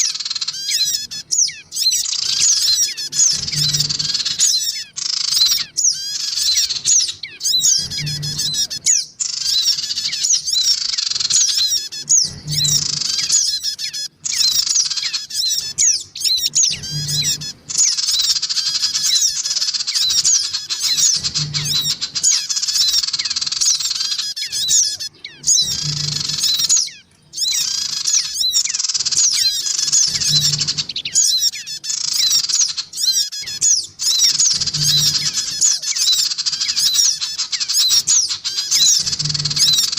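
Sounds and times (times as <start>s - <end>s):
birds chirping and trilling: 0.0s - 39.9s
short low hum: 20.9s - 22.2s.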